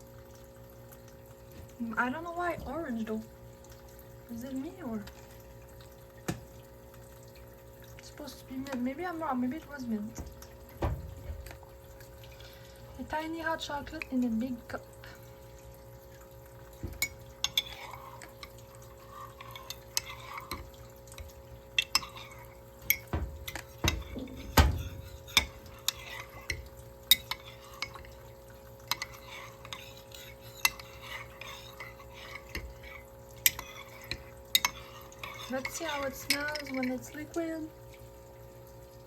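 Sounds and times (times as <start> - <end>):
low steady hum: 0.0 - 39.0
spoon clinking in ceramic mug: 21.8 - 28.1.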